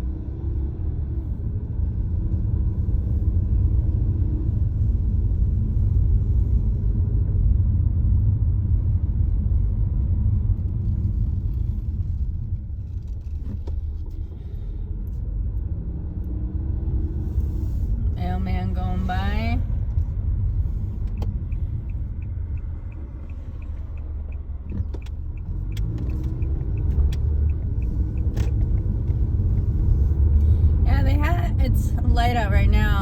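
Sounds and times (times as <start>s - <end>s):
car engine and road rumble: 0.0s - 33.0s.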